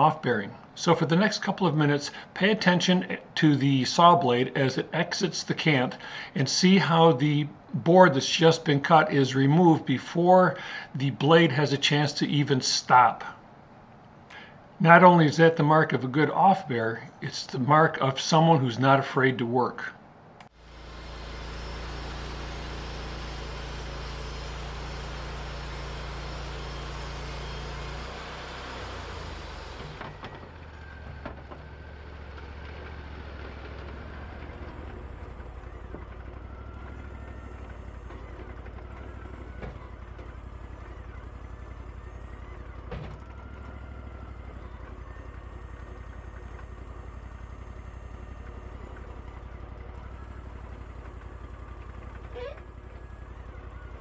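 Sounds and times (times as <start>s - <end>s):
engine humming: 20.4s - 54.0s
saw blade hissing through wood: 20.6s - 30.0s.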